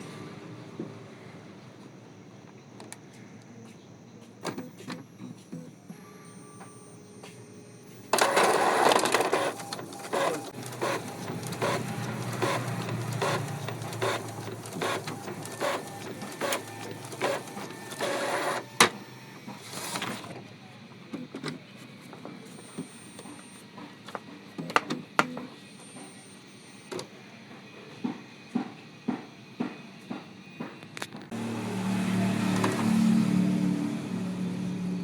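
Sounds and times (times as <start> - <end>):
inkjet printer running: 4.4 - 35.0
printer clicks: 8.1 - 20.4, 23.2 - 25.5.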